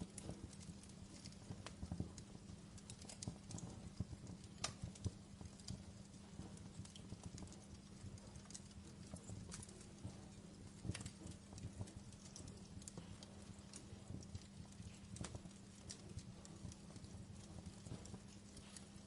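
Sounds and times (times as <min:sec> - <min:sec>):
burning logs rumbling: 0:00.0 - 0:19.0
faint steady hum: 0:00.0 - 0:19.0
wood fire crackling: 0:00.0 - 0:19.0.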